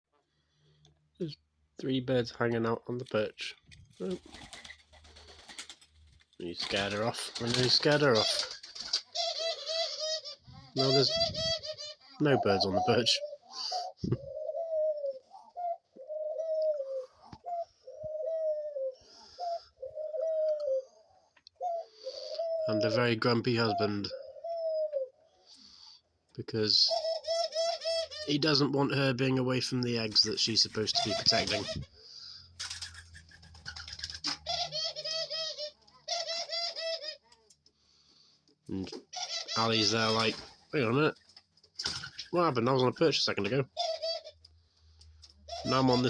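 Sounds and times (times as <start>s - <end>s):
dove cooing: 6.6s - 25.5s, 26.9s - 28.5s, 30.6s - 37.5s, 38.7s - 40.9s, 41.8s - 46.0s.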